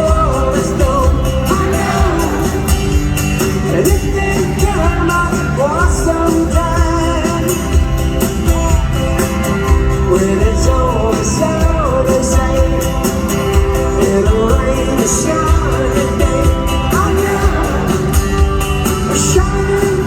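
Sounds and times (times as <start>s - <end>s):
person singing: 0.0s - 2.9s, 10.0s - 18.4s
drums and cymbals: 0.0s - 20.0s
live rock band: 0.0s - 20.0s.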